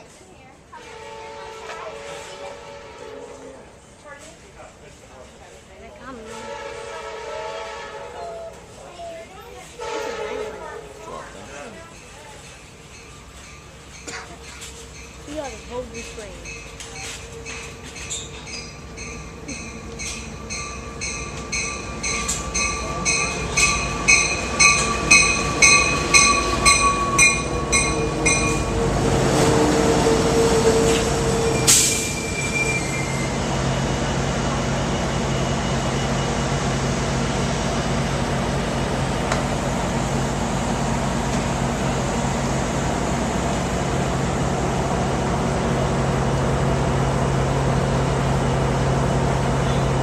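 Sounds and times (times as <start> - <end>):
diesel locomotive idling: 0.0 - 50.0
locomotive bell ringing: 10.1 - 29.0
train brakes squealing: 12.0 - 36.8.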